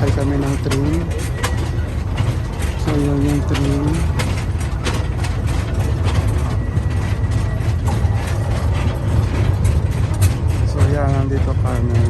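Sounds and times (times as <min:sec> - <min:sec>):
low engine rumble: 0:00.0 - 0:12.0
train cars clicking and rattling: 0:00.0 - 0:12.0.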